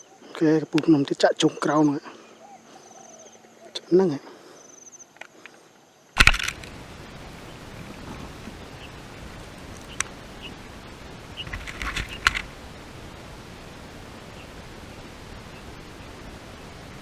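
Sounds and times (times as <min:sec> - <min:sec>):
steady hiss: 0:00.0 - 0:17.0
sharp click: 0:06.2 - 0:06.7
rustling: 0:06.2 - 0:12.8.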